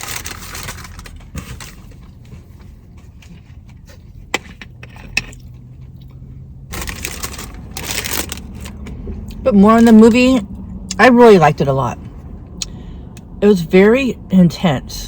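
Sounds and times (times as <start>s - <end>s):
crunching taco being chewed: 0.0s - 9.4s.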